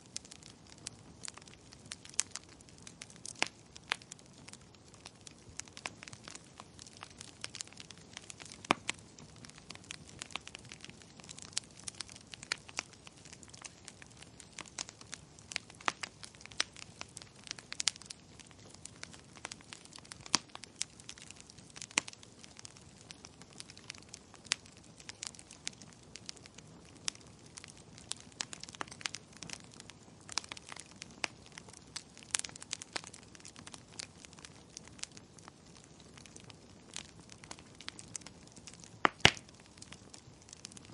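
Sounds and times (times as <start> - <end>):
soft steady hiss: 0.0 - 40.9
wood fire crackling: 0.0 - 40.9.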